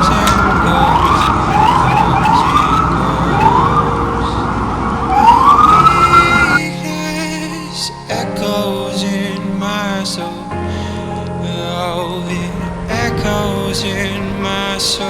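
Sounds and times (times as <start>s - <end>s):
city traffic din: 0.0s - 6.6s
emergency siren sweeps: 0.0s - 6.6s.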